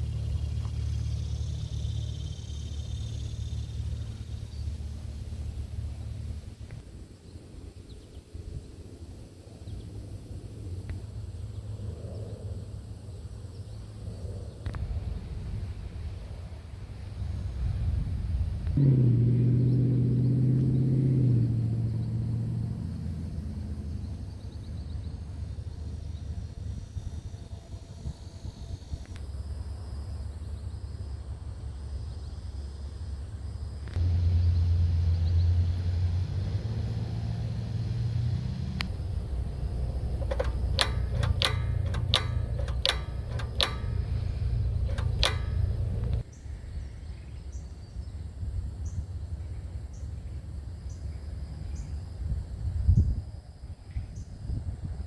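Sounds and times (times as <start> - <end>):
sharp clicks: 38.8 - 46.3.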